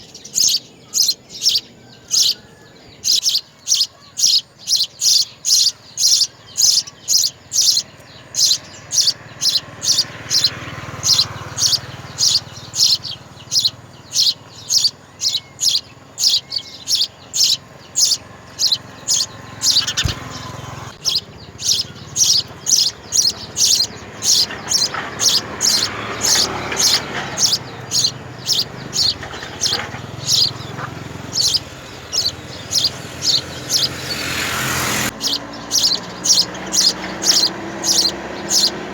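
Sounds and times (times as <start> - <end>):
nestling birds begging chirps: 0.0 - 38.9.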